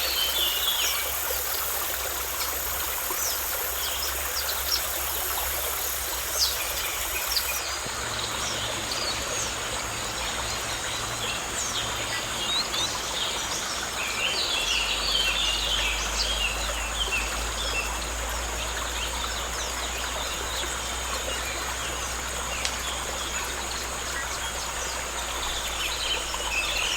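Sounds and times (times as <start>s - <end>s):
high insect drone: 0.0s - 7.6s
background hiss: 0.0s - 7.7s.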